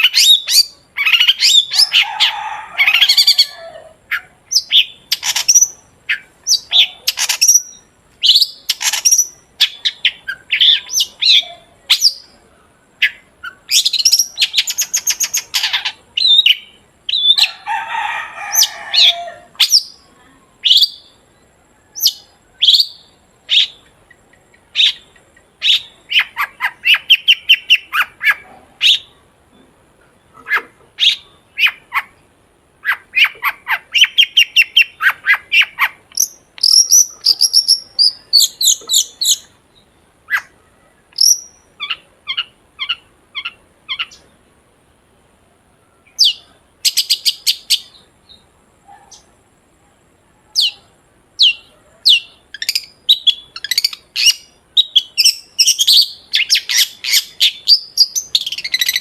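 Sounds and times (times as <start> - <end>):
shrike singing sharp calls: 0.0 - 12.4, 13.0 - 21.3, 24.6 - 29.2, 32.8 - 44.3
harsh rasping bird chatter: 4.1 - 12.2, 13.5 - 16.5.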